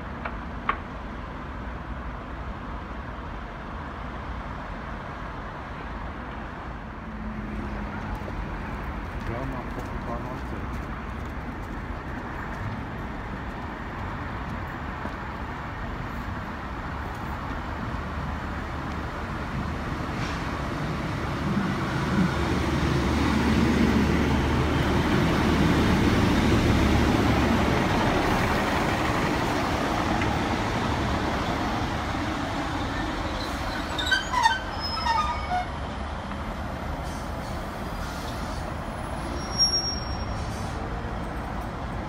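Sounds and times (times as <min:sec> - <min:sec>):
wheel-on-rail noise: 0:07.6 - 0:37.2
train brakes squealing: 0:32.8 - 0:35.8, 0:37.0 - 0:40.9.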